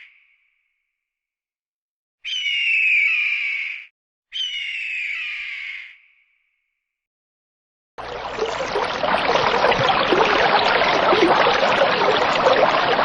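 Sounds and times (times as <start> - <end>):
running water rushing: 8.0 - 13.0.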